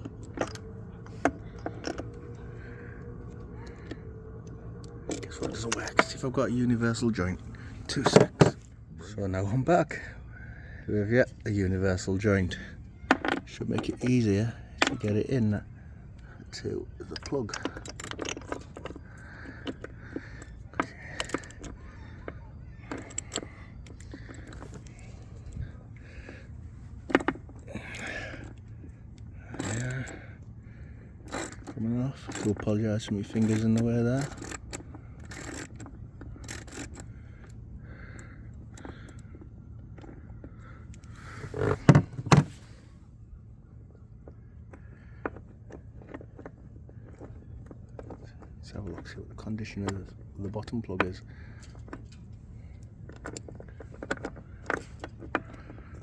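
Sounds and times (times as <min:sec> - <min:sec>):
metal socket tools clinking: 0:00.0 - 0:04.0, 0:04.8 - 0:07.1, 0:13.1 - 0:15.4, 0:16.4 - 0:21.8, 0:31.3 - 0:37.6
low rumble: 0:00.0 - 0:09.0.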